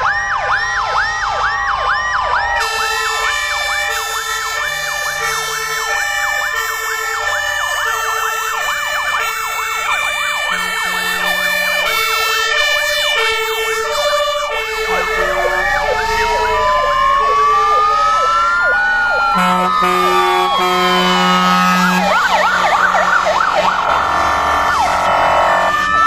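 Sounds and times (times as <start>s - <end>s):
rising wail siren: 0.0s - 26.0s
two-tone hi-lo sirens: 0.0s - 26.0s
warbling yelp sirens: 0.0s - 26.0s.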